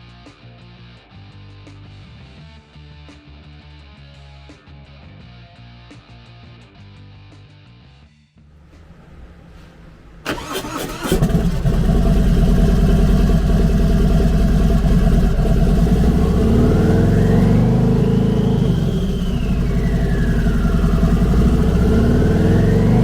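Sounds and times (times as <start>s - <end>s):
starter motor cranking: 10.3s - 16.4s
turbo whine: 10.3s - 23.0s
motorcycle engine running: 11.1s - 23.0s.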